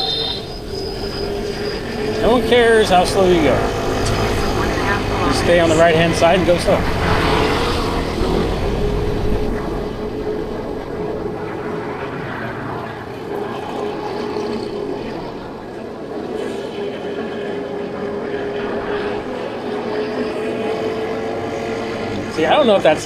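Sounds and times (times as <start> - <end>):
road and traffic noise: 0.0 - 23.0.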